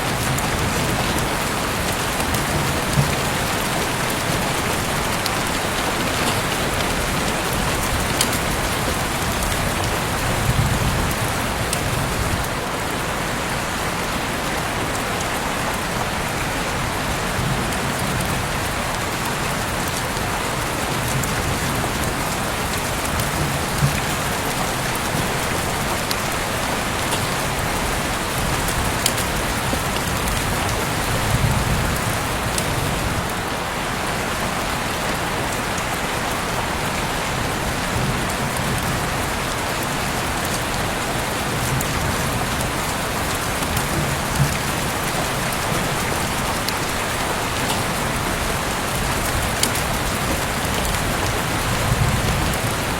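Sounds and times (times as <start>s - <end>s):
heavy rain falling: 0.0s - 52.9s
raindrop ticks: 0.1s - 12.5s, 19.4s - 33.4s, 39.7s - 52.9s.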